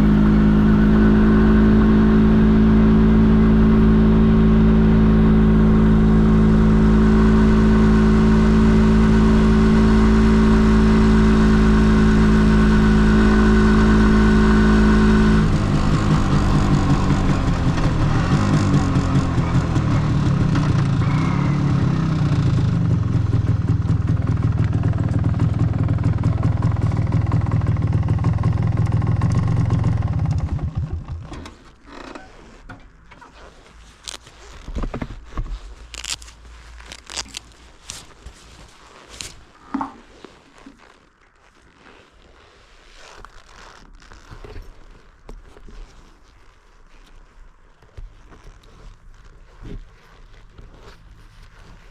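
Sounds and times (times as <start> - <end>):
two-stroke motorcycle engine running: 0.0 - 31.4.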